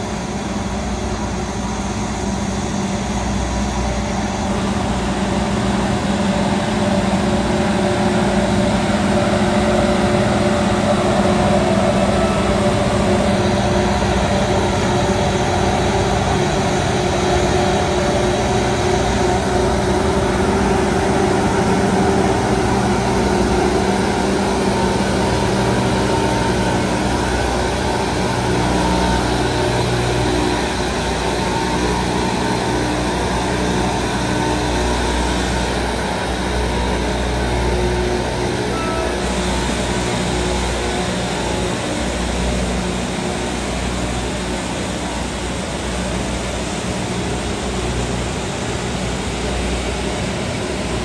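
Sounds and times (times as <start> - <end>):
train rumbling past: 0.0 - 51.0.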